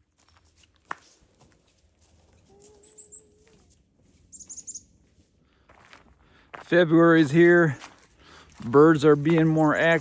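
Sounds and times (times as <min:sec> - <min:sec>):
descending bird notes: 0:02.5 - 0:03.6, 0:04.2 - 0:05.0
birds chirping: 0:02.5 - 0:05.1.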